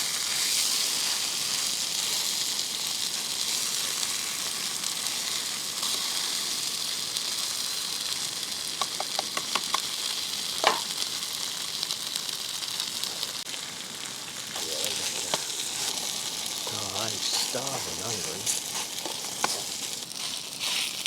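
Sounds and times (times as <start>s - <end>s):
food sizzling in a frying pan: 0.0s - 21.0s.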